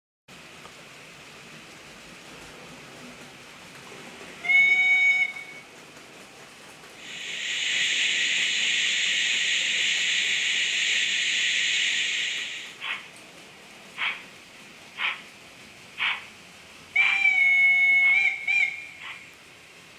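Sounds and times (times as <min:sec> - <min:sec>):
model locomotive whistle: 0:04.4 - 0:05.8, 0:07.0 - 0:12.8, 0:17.0 - 0:19.0
steam puff: 0:07.0 - 0:12.8
steam hiss: 0:07.0 - 0:13.1.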